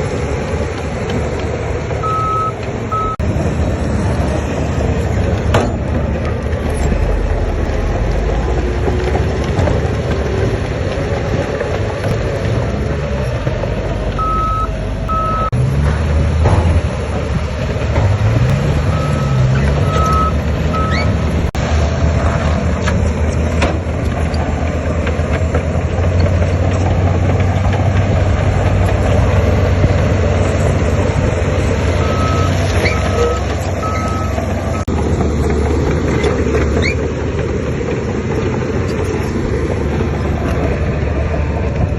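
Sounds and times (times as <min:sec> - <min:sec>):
diesel machinery engine running: 0:00.0 - 0:41.9
reversing alarm beeping: 0:02.0 - 0:03.2, 0:14.2 - 0:15.6, 0:18.8 - 0:21.2, 0:32.0 - 0:34.9.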